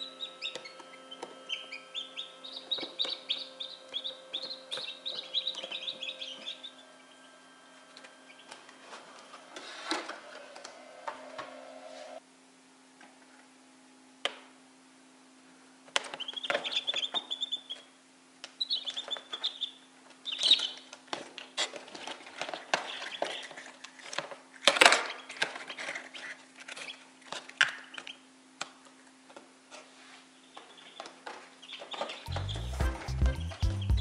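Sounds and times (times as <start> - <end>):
chicks peeping: 0.0 - 12.2, 15.9 - 28.2, 30.4 - 34.0
steady low hum: 0.0 - 15.9.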